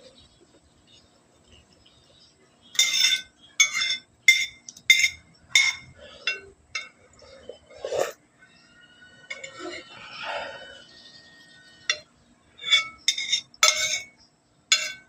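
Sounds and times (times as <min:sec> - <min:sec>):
utensils clinking on a dish: 0:02.7 - 0:08.2, 0:09.3 - 0:10.4, 0:11.0 - 0:15.0.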